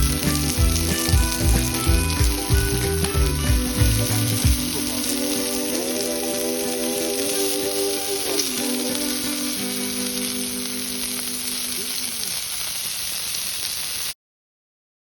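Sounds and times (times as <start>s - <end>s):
held musical notes: 0.0s - 12.0s
pork belly sizzling: 0.0s - 14.2s.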